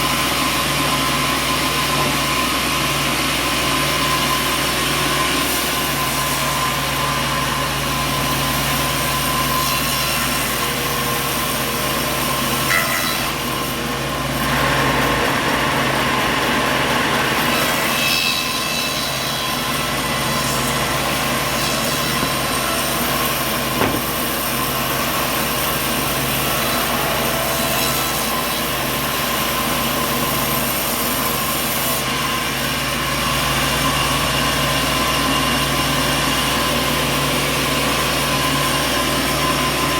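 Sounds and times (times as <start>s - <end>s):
sawmill machinery running: 0.0s - 39.9s
brief knocks: 23.8s - 24.4s.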